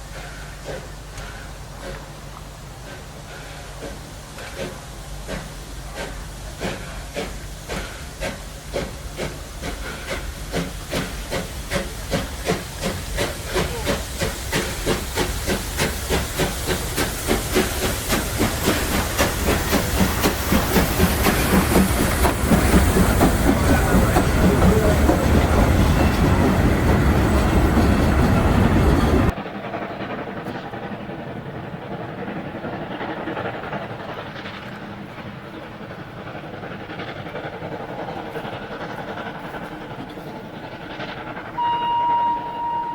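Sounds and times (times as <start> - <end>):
steam hiss: 0.0 - 29.4
steam locomotive chuffing: 0.0 - 42.9
train noise: 0.0 - 42.9.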